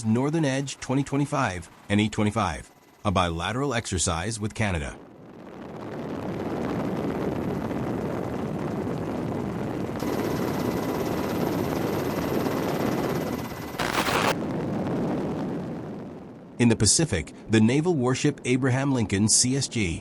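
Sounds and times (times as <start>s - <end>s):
aircraft engine noise: 7.1s - 14.4s.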